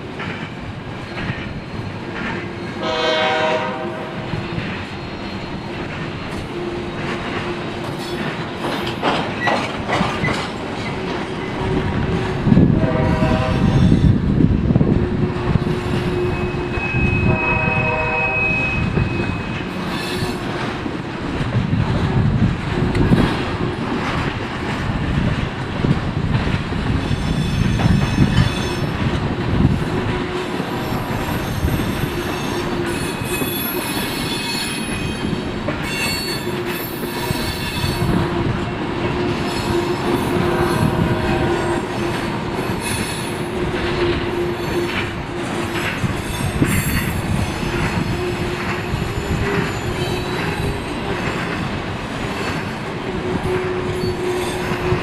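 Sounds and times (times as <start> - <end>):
train wheels rumbling on rail: 0.0 - 55.0
high-pitched wheel squeal: 15.8 - 20.4.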